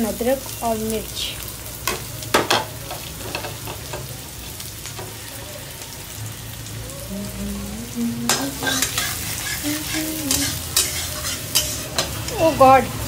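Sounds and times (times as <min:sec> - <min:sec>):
vegetables frying in hot oil: 0:00.0 - 0:13.0
utensil clinking on pan: 0:08.3 - 0:12.2.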